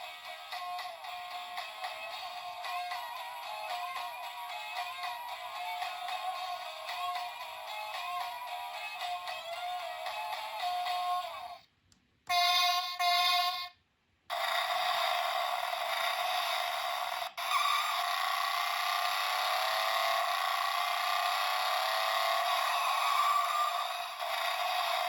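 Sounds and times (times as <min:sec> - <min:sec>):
short electronic tones: 0:14.3 - 0:18.6
rising sustained toy sound effect: 0:14.3 - 0:25.0.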